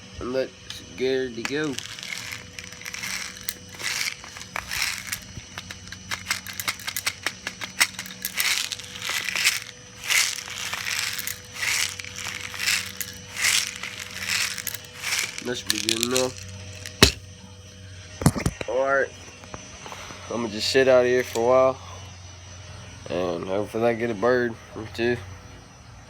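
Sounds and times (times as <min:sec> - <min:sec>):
metal bbs rattling and clicking: 0:01.4 - 0:17.2.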